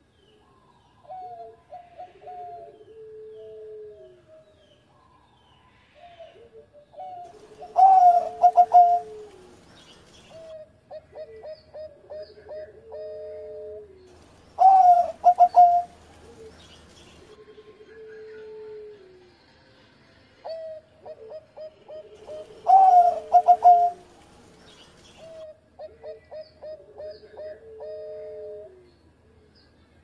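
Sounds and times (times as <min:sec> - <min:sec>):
dove cooing: 0:01.0 - 0:04.4, 0:06.2 - 0:19.2, 0:20.4 - 0:24.2, 0:25.2 - 0:28.9.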